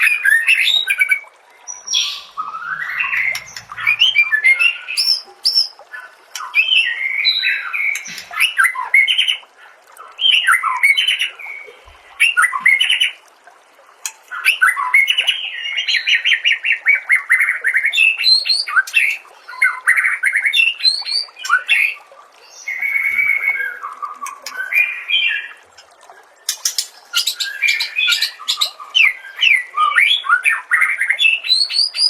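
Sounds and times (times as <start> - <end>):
songbird whistling and chirping: 0.1 - 5.8, 27.1 - 32.0.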